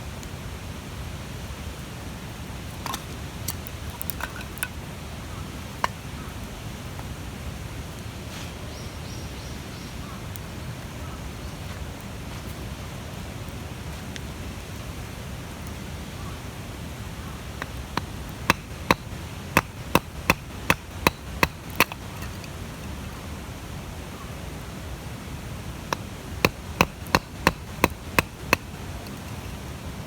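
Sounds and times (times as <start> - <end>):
steady hiss: 0.0 - 30.0
hatchet chopping wood: 17.6 - 22.6, 25.9 - 29.3.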